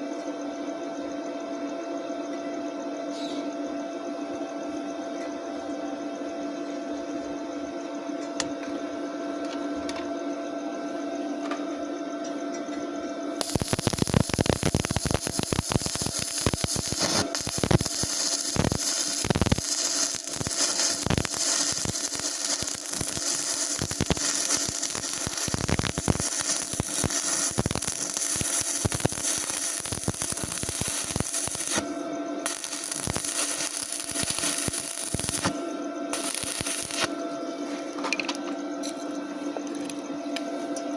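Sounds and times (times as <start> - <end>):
welding arc crackling: 13.4 - 37.2.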